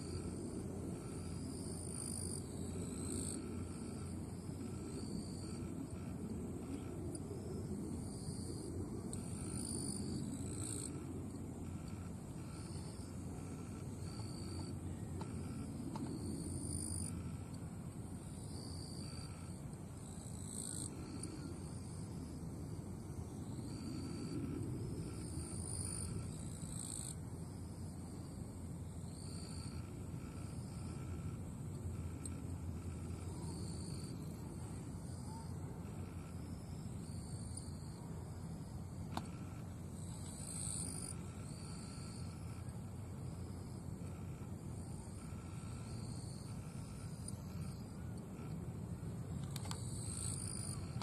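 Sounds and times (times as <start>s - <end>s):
insects buzzing: 0.0s - 51.0s.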